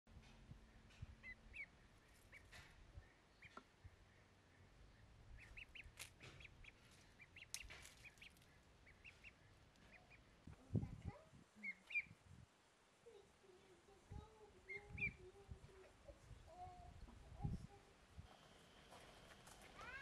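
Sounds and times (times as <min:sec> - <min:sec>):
faint bird chirps: 0:11.6 - 0:12.2.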